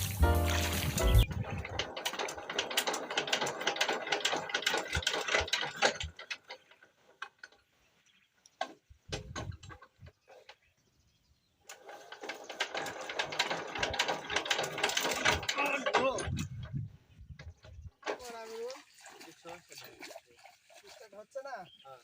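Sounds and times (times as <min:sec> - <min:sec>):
metallic clicking and rattling: 0:00.8 - 0:07.7, 0:11.7 - 0:18.2.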